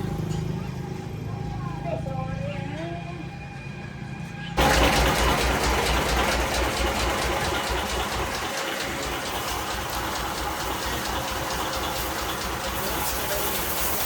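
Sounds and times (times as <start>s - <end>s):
tractor engine chugging: 4.6s - 14.0s.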